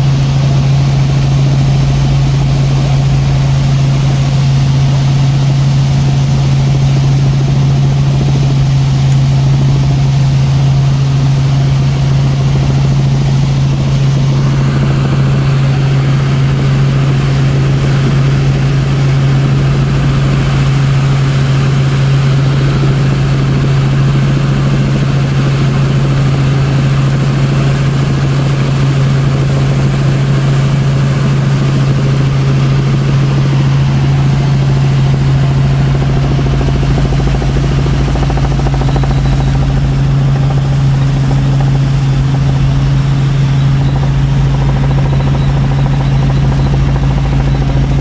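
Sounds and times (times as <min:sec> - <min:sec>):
helicopter engine and rotors: 0:00.0 - 0:48.0
deep rumble and hiss: 0:35.8 - 0:48.0.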